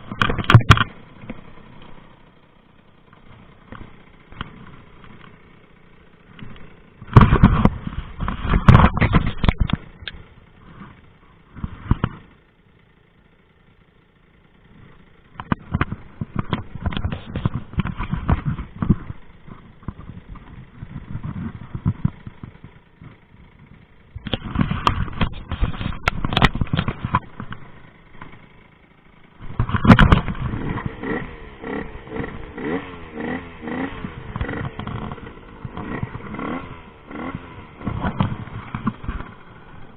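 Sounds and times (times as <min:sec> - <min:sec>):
sharp cracks: 0:00.0 - 0:02.1, 0:29.4 - 0:39.8
moped engine revving: 0:00.0 - 0:39.9.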